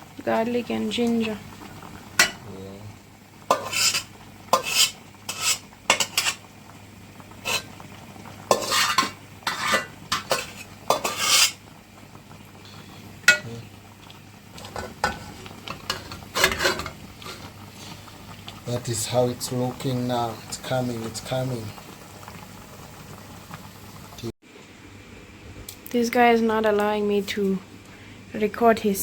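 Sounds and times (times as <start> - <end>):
spoon scraping metal pot: 3.5 - 6.4, 8.5 - 11.6, 15.9 - 17.0.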